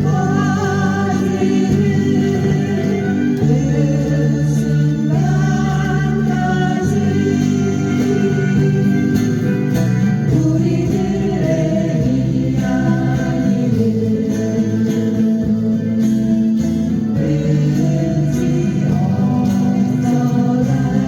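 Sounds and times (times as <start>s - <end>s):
acoustic guitars strumming: 0.0s - 21.0s
group of voices singing: 0.0s - 21.0s.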